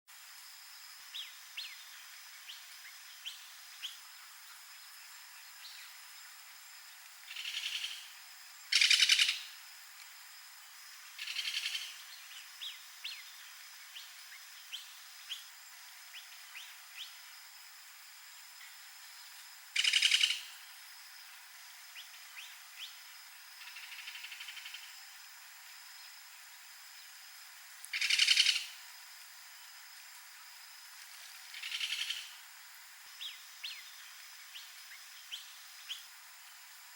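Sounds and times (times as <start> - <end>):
rapid rattling bird calls: 7.2 - 9.6, 11.0 - 17.3, 19.7 - 20.6, 22.0 - 25.2, 27.9 - 28.8, 31.0 - 32.5
bird chirps: 19.8 - 20.5, 27.9 - 28.7, 31.5 - 32.3.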